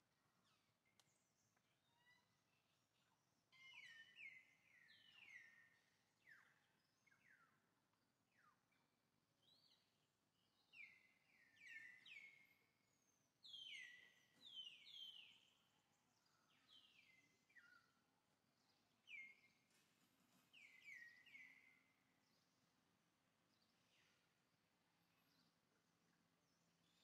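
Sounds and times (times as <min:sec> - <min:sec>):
faint bird chirps: 0:00.4 - 0:19.7, 0:20.5 - 0:22.7.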